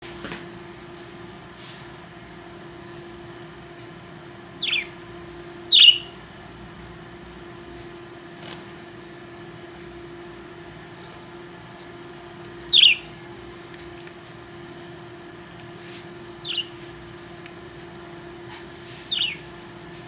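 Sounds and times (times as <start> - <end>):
parrot sharp calls: 4.6 - 5.0, 5.6 - 6.2, 12.5 - 13.4, 16.4 - 17.0, 19.0 - 19.6.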